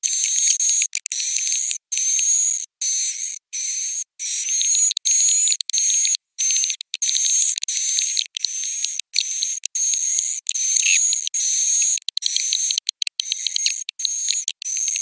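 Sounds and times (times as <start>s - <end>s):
swiftlets twittering: 6.6s - 15.0s.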